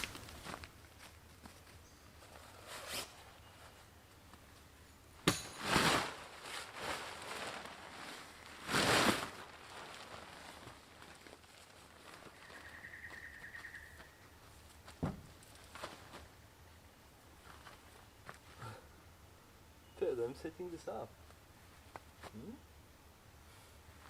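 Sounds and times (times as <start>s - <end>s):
rustling swishes: 5.4s - 12.7s.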